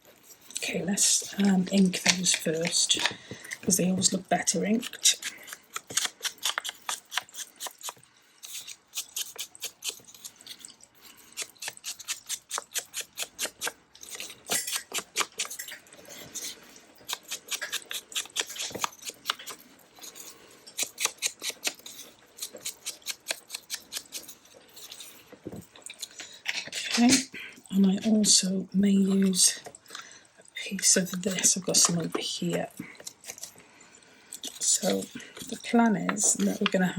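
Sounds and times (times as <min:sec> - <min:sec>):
hand tool scratching paper: 0:03.7 - 0:10.3, 0:11.4 - 0:15.7, 0:16.4 - 0:20.2, 0:20.8 - 0:24.4.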